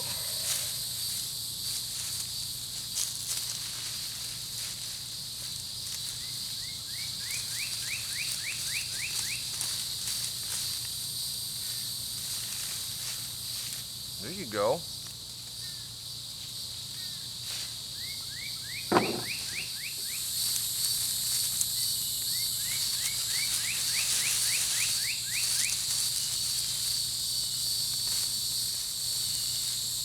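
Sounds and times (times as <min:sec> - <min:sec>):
insects buzzing: 0:00.0 - 0:30.0
sharp knock: 0:18.9 - 0:19.6.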